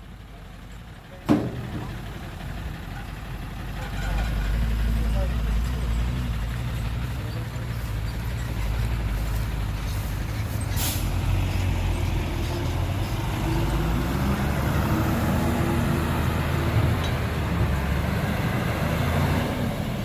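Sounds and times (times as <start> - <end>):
heavy diesel engine rumbling: 0.0 - 20.0
air hiss: 10.7 - 11.2.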